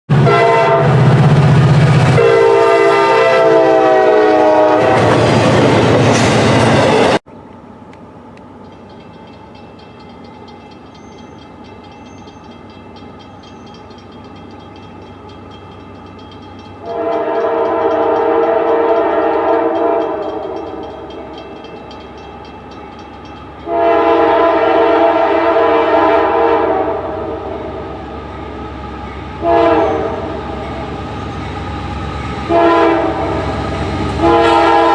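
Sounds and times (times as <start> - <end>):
train horn blasts: 0.1 - 5.4, 16.8 - 21.0, 23.6 - 27.9, 29.4 - 30.6, 32.4 - 34.9
train rumbling: 0.1 - 34.9.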